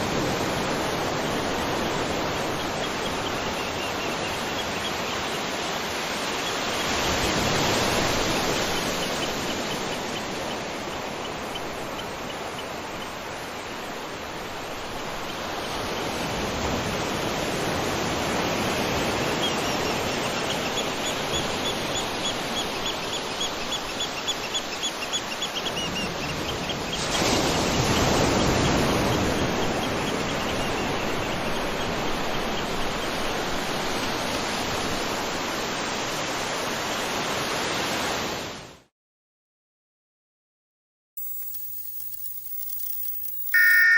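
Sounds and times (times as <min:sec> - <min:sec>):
rapid high chirping: 0:41.2 - 0:43.9.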